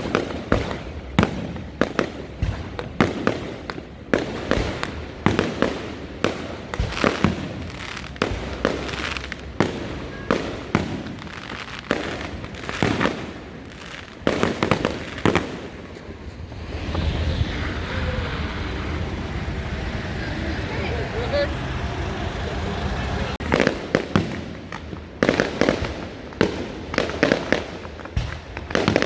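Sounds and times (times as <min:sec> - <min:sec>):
fireworks bangs: 0:00.0 - 0:29.0
steady rushing noise: 0:15.7 - 0:23.9.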